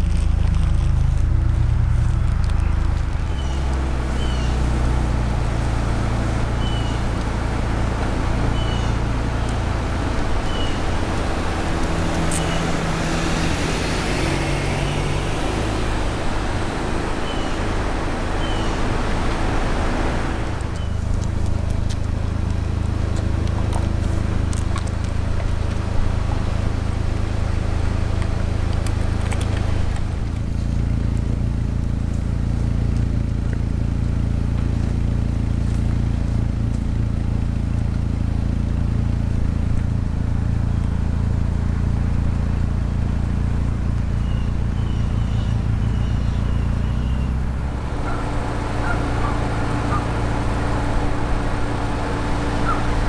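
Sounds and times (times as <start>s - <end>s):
vehicle engine and road noise: 0.0s - 53.0s.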